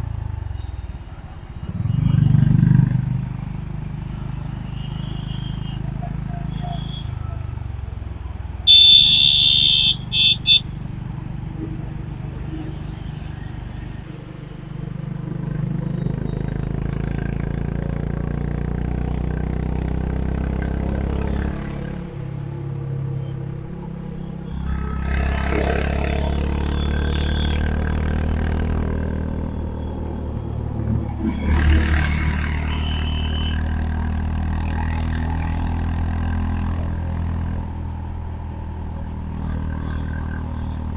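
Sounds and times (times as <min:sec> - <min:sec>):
motorcycle engine running: 0:00.0 - 0:40.9
horn toots: 0:08.7 - 0:10.8, 0:24.1 - 0:35.2.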